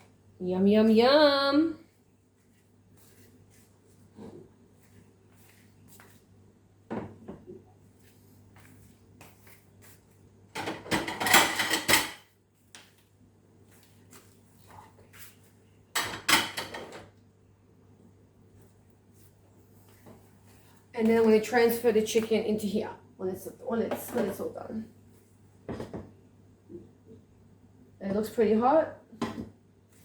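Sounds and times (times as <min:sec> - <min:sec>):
dishes rattling: 0:10.6 - 0:12.2.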